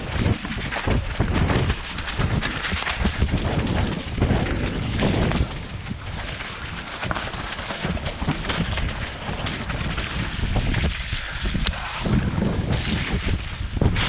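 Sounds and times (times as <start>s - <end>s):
wind buffeting microphone: 0.0s - 14.0s
knocks and rattles: 7.8s - 9.9s.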